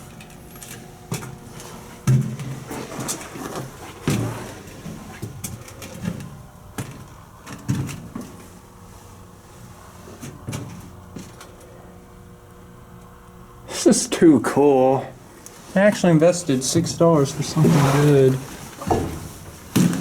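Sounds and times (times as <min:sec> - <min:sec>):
faint steady hum: 0:00.0 - 0:20.0
footsteps: 0:15.5 - 0:20.0
knocks and thumps: 0:17.6 - 0:20.0.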